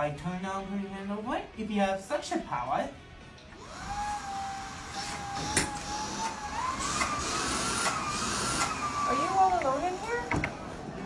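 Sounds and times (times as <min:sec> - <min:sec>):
vacuum cleaner motor whine: 0:03.6 - 0:11.0.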